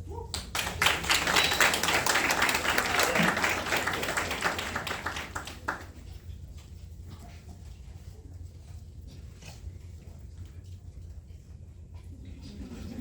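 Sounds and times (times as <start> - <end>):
audience applauding: 0.4 - 6.0.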